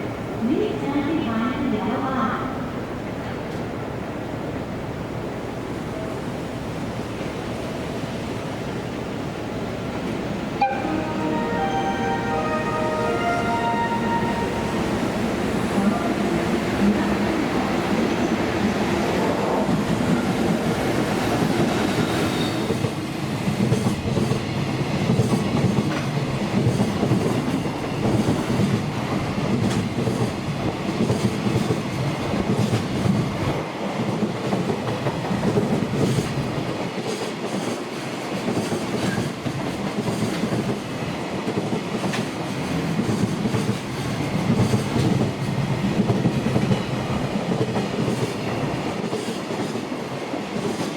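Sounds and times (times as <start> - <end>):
train wheels clattering over rail joints: 34.1 - 49.8.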